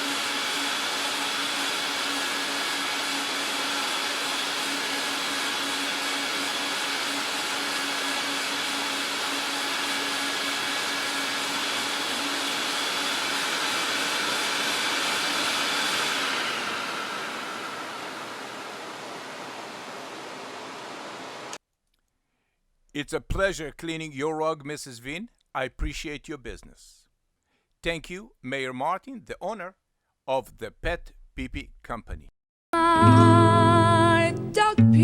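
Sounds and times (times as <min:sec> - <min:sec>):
vacuum motor whining: 0:00.0 - 0:21.6.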